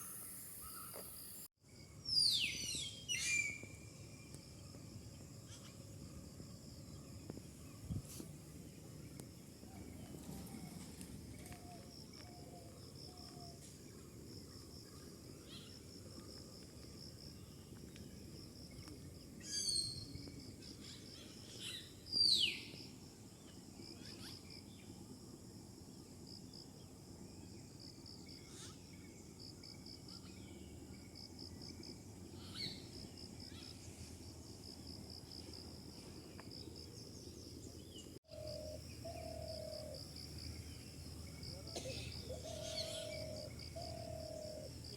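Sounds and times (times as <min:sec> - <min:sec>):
pulsing insect chirr: 0:00.0 - 0:44.9
wild birds calling: 0:38.3 - 0:40.8, 0:41.5 - 0:44.9.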